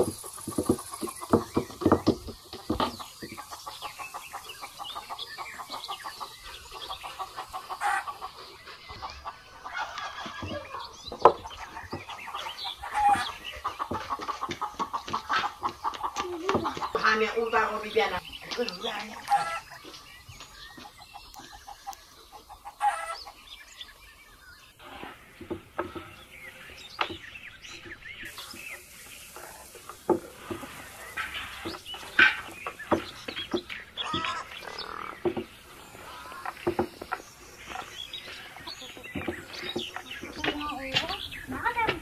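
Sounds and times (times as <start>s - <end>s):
rolling pin knocking on wooden board: 0.0s - 3.4s, 35.2s - 35.5s, 36.5s - 37.2s
birds chirping: 0.0s - 42.0s.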